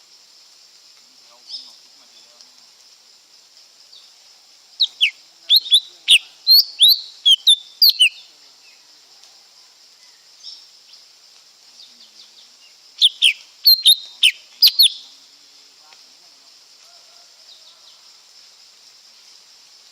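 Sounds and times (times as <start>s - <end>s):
steady high hiss: 0.0s - 19.9s
bird singing whistled notes: 4.8s - 8.3s, 13.0s - 15.1s.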